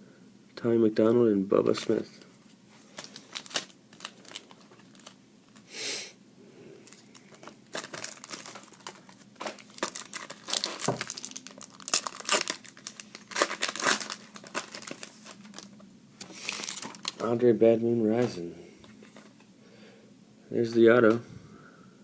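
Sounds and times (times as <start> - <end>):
wrapper crinkling and tearing: 2.9 - 5.6, 6.8 - 17.4.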